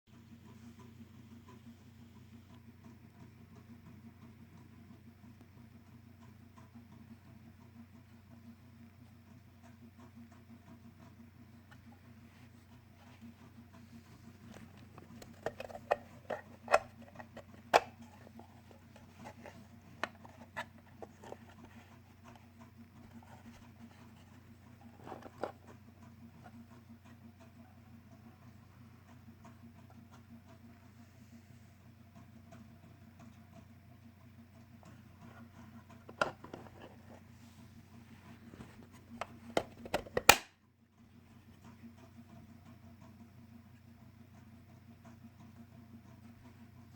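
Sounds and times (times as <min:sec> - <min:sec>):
steady low hum: 0:00.1 - 0:46.9
plastic clicks and taps: 0:14.5 - 0:22.4, 0:23.0 - 0:25.8, 0:36.0 - 0:37.2, 0:39.2 - 0:40.5.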